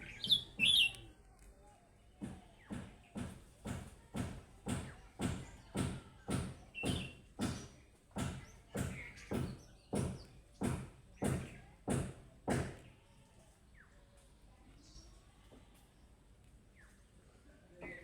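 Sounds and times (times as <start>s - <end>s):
budgerigar chirps: 0.0s - 0.9s.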